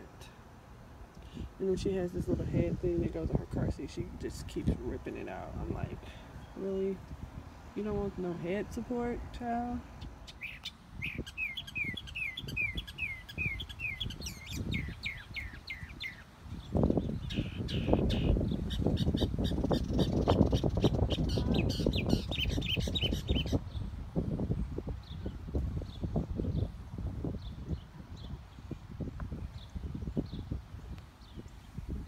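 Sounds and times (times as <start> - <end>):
songbird chirping: 1.0 - 24.0.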